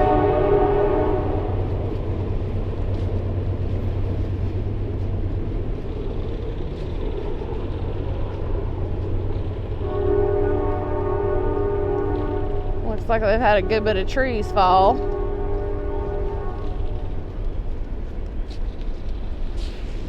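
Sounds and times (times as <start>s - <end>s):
train horn chord: 0.0s - 2.0s, 9.8s - 17.3s
train rumbling on tracks: 0.0s - 20.0s.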